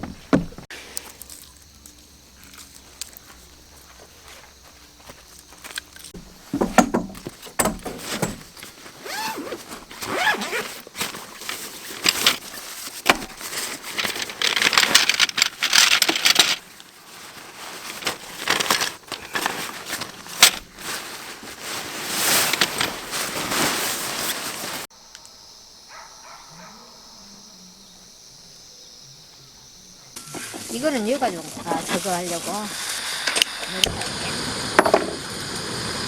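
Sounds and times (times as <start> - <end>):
objects rustling and clattering: 0.0 - 24.9, 30.3 - 33.6.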